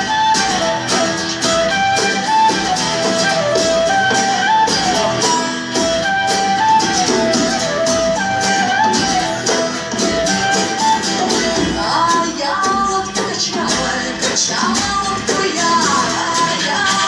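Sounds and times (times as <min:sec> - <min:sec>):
band playing melody line: 0:00.0 - 0:17.0
strummed guitar chords: 0:00.0 - 0:17.0.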